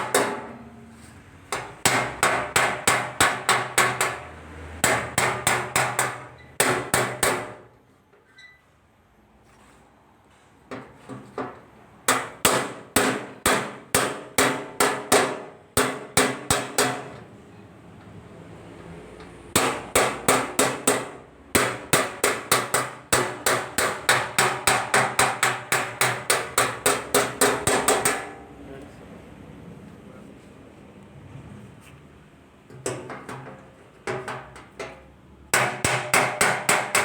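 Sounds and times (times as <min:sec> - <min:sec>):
hammer striking sheet metal: 0:00.0 - 0:07.7, 0:11.4 - 0:17.2, 0:19.5 - 0:28.4, 0:32.8 - 0:37.0.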